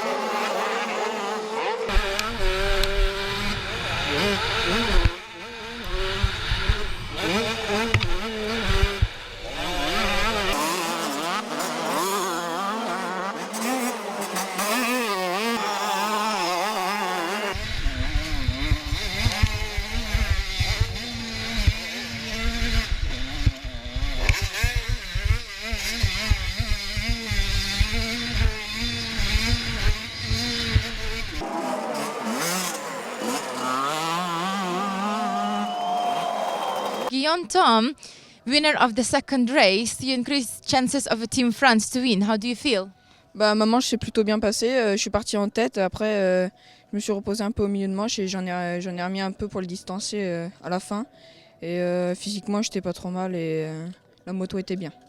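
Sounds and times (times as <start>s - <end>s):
motocross engines revving: 0.0s - 37.2s.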